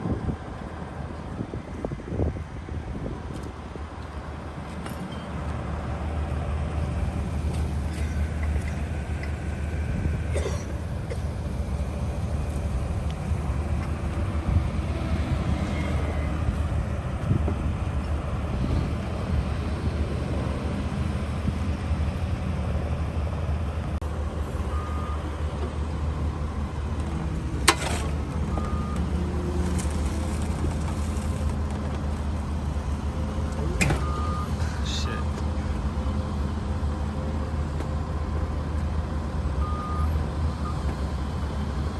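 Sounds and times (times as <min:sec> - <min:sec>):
vehicle engine rumbling: 0:00.0 - 0:41.9.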